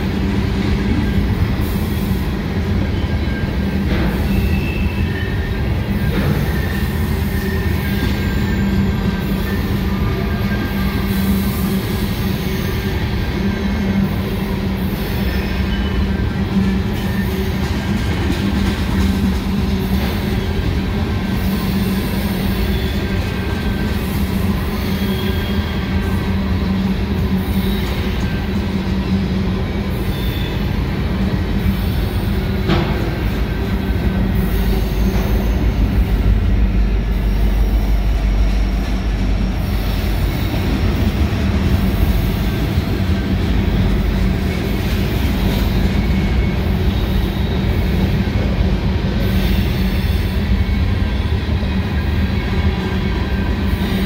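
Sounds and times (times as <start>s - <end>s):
freight train wheels rumbling: 0.0s - 54.0s
high-pitched wheel squeals: 2.8s - 17.8s, 21.5s - 28.5s, 33.8s - 36.2s.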